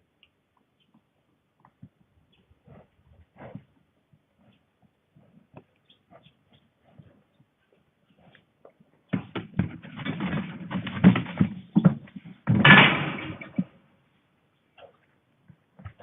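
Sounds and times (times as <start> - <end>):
knocks and thuds: 9.1 - 13.8.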